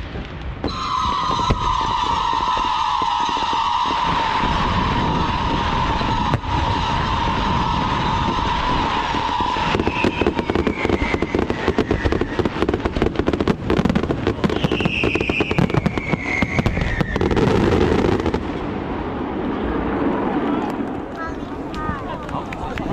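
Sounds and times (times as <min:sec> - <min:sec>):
fireworks crackling: 0:00.0 - 0:22.9
falling firework whistle: 0:00.6 - 0:18.6.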